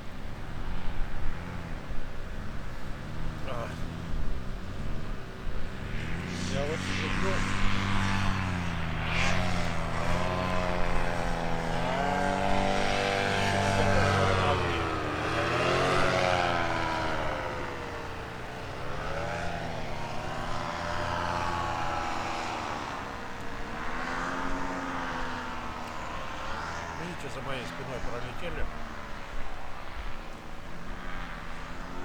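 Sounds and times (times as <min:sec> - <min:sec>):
propeller aircraft flying past: 0:00.0 - 0:32.0.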